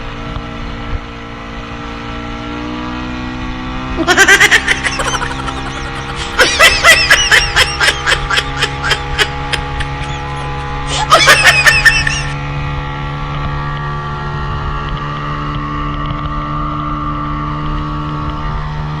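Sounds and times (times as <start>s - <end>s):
people laughing: 4.0s - 12.4s
motorboat engine running: 4.0s - 19.0s.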